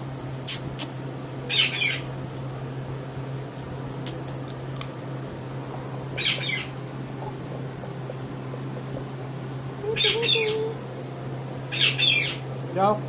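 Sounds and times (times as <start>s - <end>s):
steady low hum: 0.0s - 13.0s
parrot squawking: 1.5s - 2.1s, 4.1s - 4.5s, 6.1s - 9.1s, 9.8s - 10.8s, 11.7s - 12.4s.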